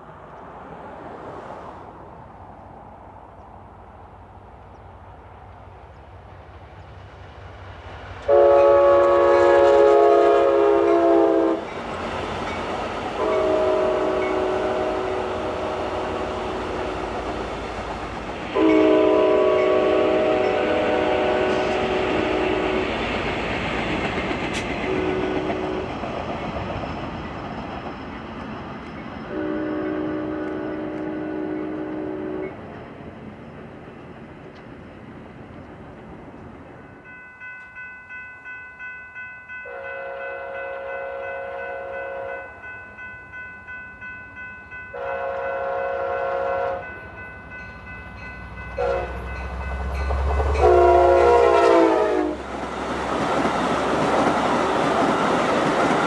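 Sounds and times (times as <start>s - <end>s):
train rumble and wheel clatter: 0.0s - 56.0s
train air horn blasts: 8.2s - 11.7s, 13.2s - 17.2s, 18.5s - 23.0s, 24.9s - 25.9s, 29.3s - 32.6s, 39.7s - 42.5s, 44.9s - 47.0s, 48.7s - 52.5s.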